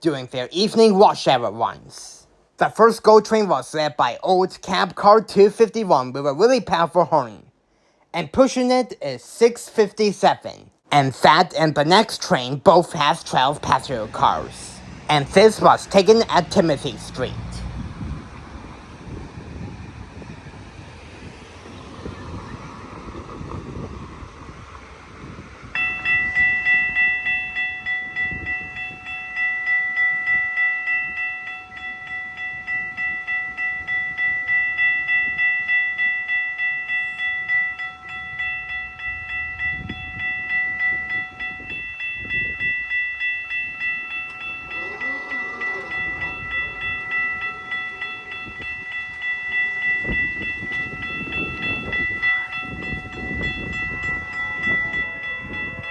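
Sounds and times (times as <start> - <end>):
train rumbling on rails: 13.2 - 29.2, 31.7 - 55.9.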